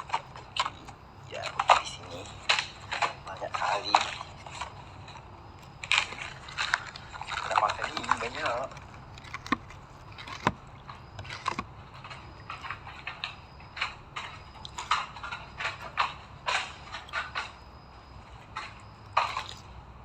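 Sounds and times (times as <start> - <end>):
plastic wrappers crinkling: 0.5 - 12.8.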